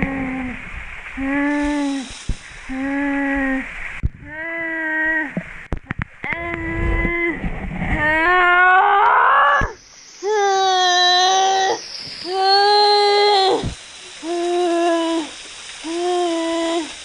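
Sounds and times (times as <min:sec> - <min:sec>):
waterfall water rushing: 0:00.0 - 0:04.0, 0:09.8 - 0:17.0.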